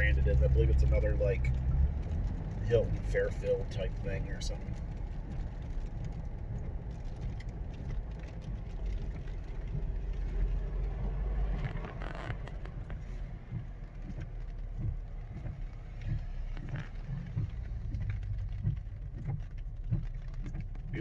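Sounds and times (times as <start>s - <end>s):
car engine and tyre rumble: 0.0s - 21.0s
tyres hissing on wet road: 0.0s - 21.0s.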